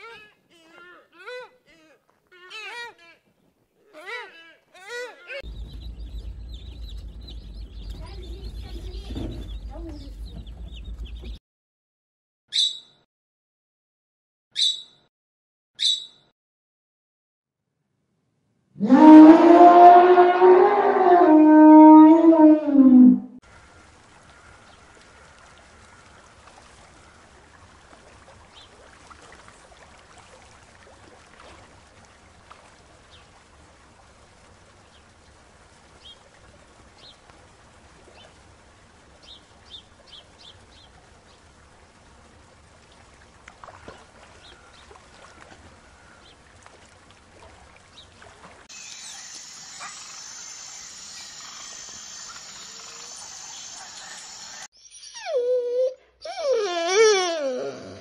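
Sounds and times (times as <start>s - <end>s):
shallow water at shore: 23.4s - 54.7s
high-pitched drone with pulse: 48.7s - 54.7s.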